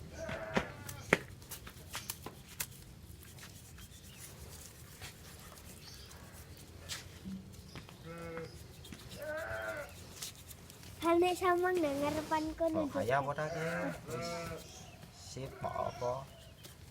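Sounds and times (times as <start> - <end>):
hand scrubbing engine parts: 1.6 - 7.0, 8.5 - 14.8.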